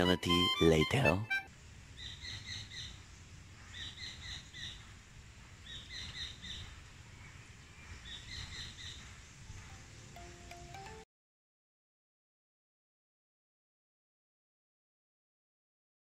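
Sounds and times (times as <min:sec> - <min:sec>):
bird calling in quick notes: 0:00.0 - 0:02.9
low outdoor rumble: 0:01.5 - 0:10.2.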